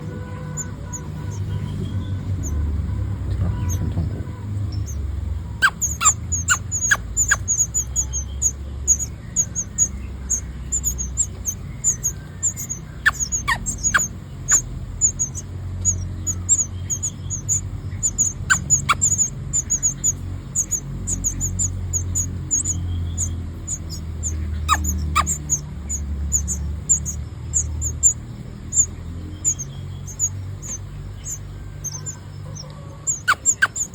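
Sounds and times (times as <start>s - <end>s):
nestling birds cheeping: 0.0s - 33.9s.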